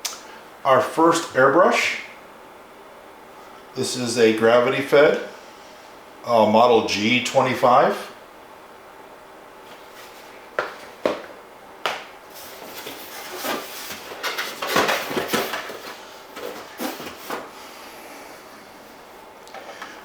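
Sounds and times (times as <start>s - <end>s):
rustling and scraping in a box: 9.7s - 11.0s, 12.3s - 17.6s.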